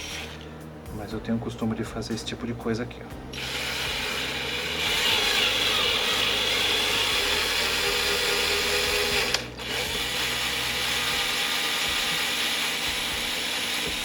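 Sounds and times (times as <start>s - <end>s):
cordless drill running: 0.0s - 0.4s, 3.3s - 14.0s.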